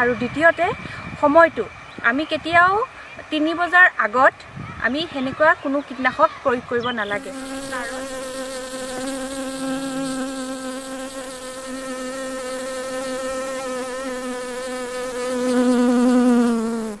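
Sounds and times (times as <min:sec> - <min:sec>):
bee buzzing: 0:07.0 - 0:17.0.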